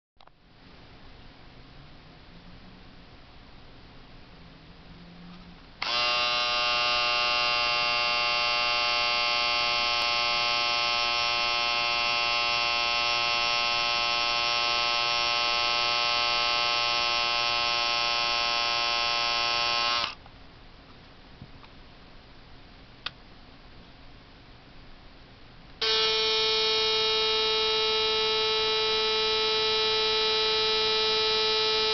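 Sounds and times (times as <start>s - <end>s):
electric shaver humming: 5.8s - 20.2s, 25.8s - 31.9s.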